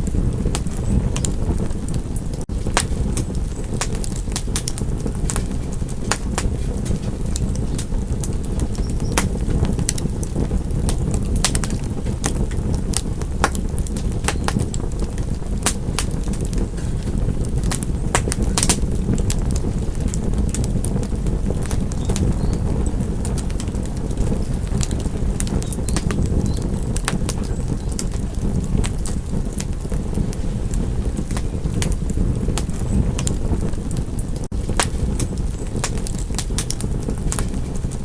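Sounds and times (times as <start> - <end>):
wood fire crackling and popping: 0.0 - 38.0
steady low rush: 9.3 - 38.0.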